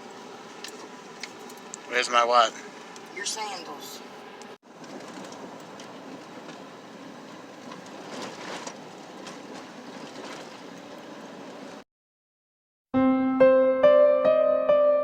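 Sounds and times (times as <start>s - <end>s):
vehicle road noise: 0.0s - 11.8s.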